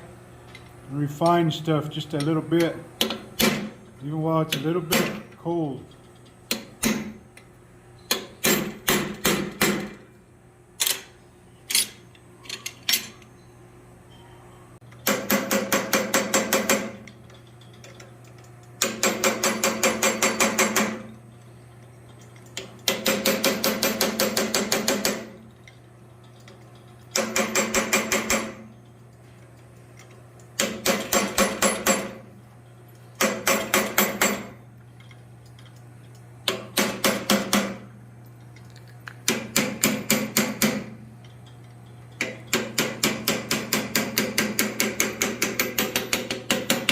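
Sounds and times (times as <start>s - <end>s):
steady low hum: 0.0s - 46.9s
hammer striking steel on anvil: 42.2s - 46.9s.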